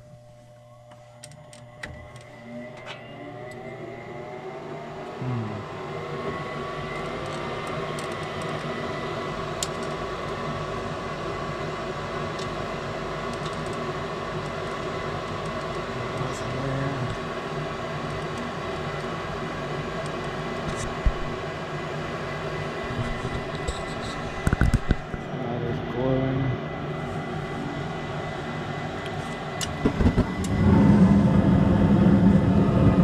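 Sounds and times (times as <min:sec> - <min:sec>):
furnace motor whine and hum: 0:00.0 - 0:33.0
rushing air: 0:29.7 - 0:33.0.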